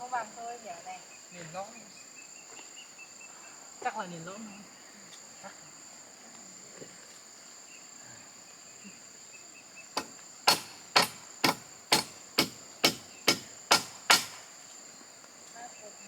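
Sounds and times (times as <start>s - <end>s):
insects buzzing: 0.0s - 16.0s
hammer driving nail into wood: 10.0s - 14.5s.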